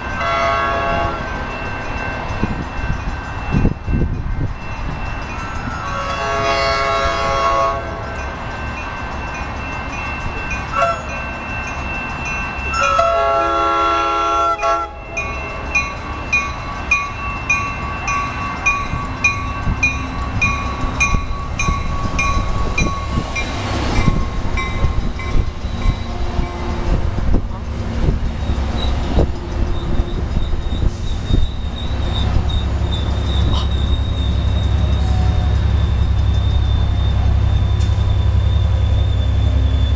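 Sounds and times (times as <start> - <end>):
passing train rumble: 0.0 - 39.9
train horn blasts: 0.2 - 1.3, 5.9 - 8.0, 10.7 - 11.1, 12.8 - 15.0.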